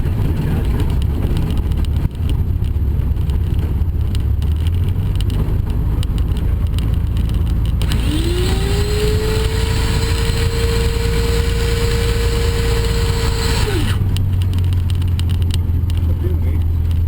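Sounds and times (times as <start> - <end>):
aircraft piston engine rumbling: 0.0 - 17.0
rising whine: 7.8 - 15.3.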